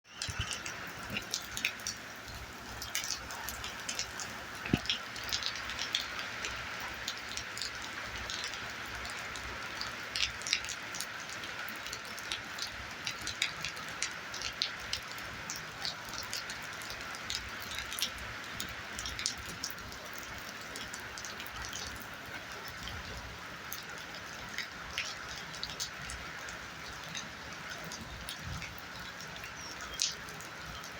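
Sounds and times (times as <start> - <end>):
heavy rain hissing: 0.1 - 10.1
raindrops tapping a surface: 0.1 - 30.9.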